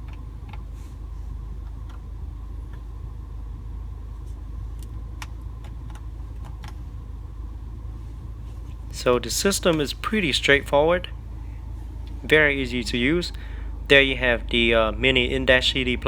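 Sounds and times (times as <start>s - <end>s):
car engine idling: 0.0s - 16.0s
faint clicks: 4.2s - 6.9s.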